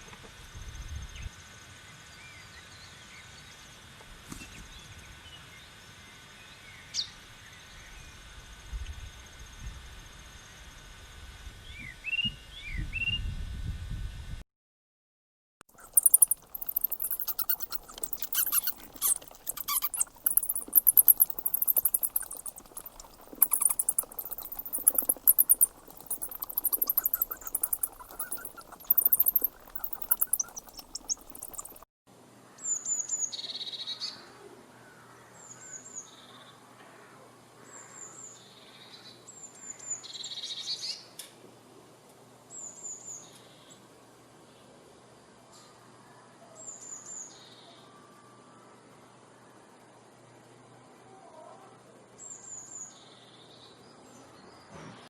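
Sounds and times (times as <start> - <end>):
high trilling and chirring: 15.8 - 31.8
small bird high falling calls: 15.8 - 31.8.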